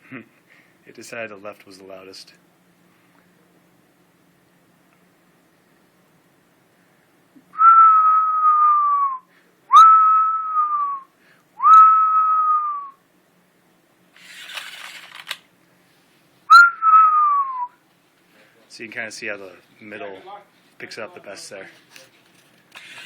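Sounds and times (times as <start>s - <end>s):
person whistling held notes: 7.6s - 11.0s, 11.6s - 13.0s, 16.5s - 17.8s.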